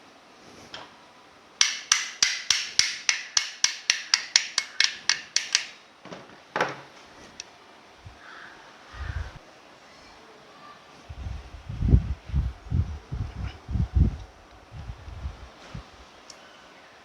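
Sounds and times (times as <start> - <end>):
hand tool sharp clicks: 1.6 - 5.8.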